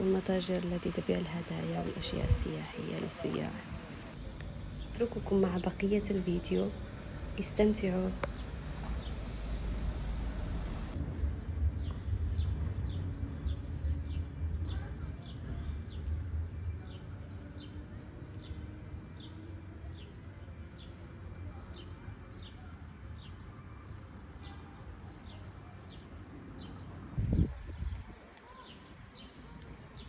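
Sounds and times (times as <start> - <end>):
low outdoor rumble: 0.0 - 22.3.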